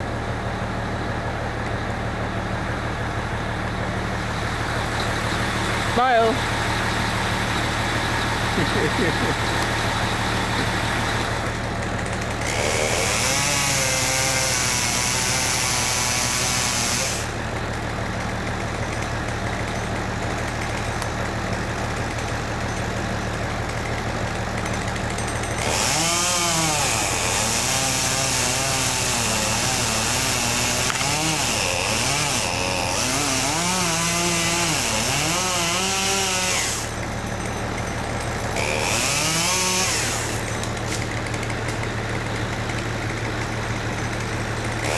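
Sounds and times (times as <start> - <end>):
engine running steadily: 0.0 - 44.9
chainsaw revving: 5.5 - 17.8, 23.7 - 37.3, 38.2 - 44.9.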